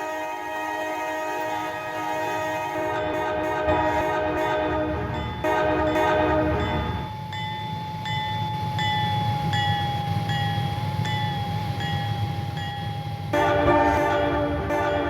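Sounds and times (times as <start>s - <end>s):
locomotive air horn: 0.0s - 7.1s, 13.3s - 15.0s
train rumbling: 0.0s - 15.0s
crossing bell ringing: 1.4s - 15.0s.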